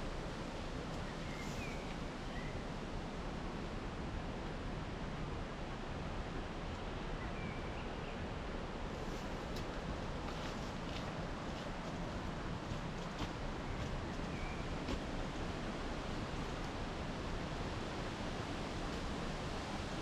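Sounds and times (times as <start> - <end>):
wind through pine trees: 0.0 - 20.0
faint bird chirps: 1.2 - 2.6.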